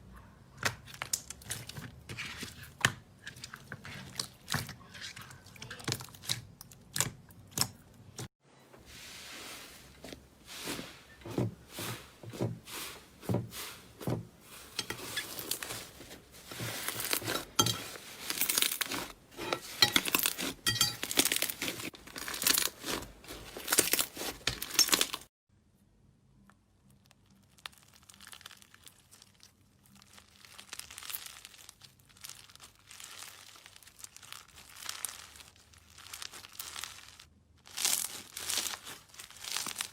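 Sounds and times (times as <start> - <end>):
slime crackling and popping: 16.7 - 19.2, 19.8 - 25.3, 26.9 - 39.9.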